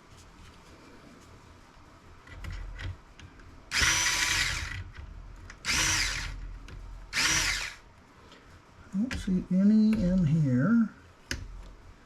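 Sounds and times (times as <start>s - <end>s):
power screwdriver whining: 3.7s - 4.8s, 5.6s - 6.4s, 7.1s - 7.8s.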